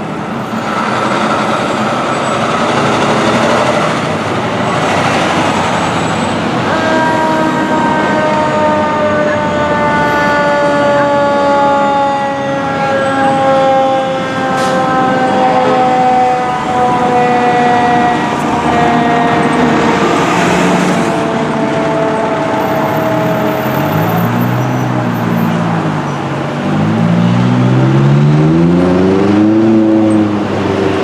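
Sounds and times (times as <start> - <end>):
heavy diesel engine: 0.0 - 31.0
road noise: 0.0 - 31.0
mechanical siren wailing: 5.8 - 26.4.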